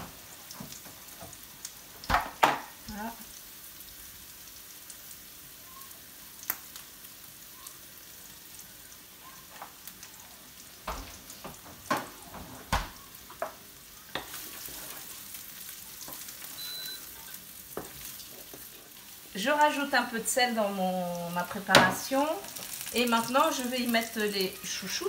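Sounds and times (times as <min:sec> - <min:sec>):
onions sizzling in frying pan: 0:00.0 - 0:25.0
wooden spatula stirring pan: 0:13.3 - 0:15.4, 0:17.2 - 0:19.3.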